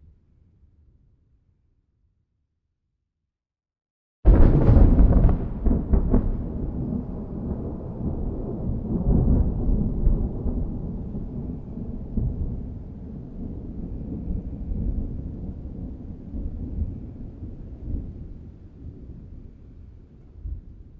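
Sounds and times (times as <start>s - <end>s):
thunder crack: 4.3s - 16.8s
thunder rolling rumble: 4.3s - 20.9s.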